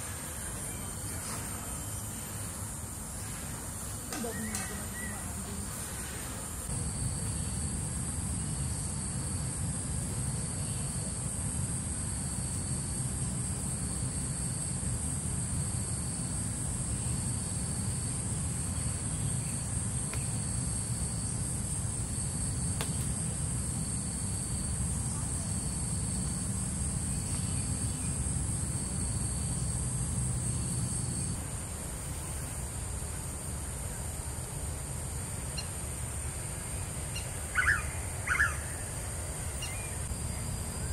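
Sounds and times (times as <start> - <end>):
pulsing insect call: 0.0 - 40.9
high-pitched insect drone: 34.9 - 40.9.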